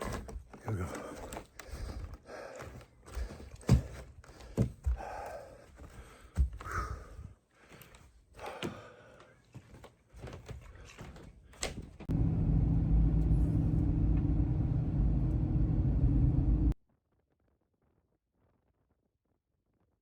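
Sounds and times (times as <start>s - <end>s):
loud low rumble with hum: 12.1s - 16.8s.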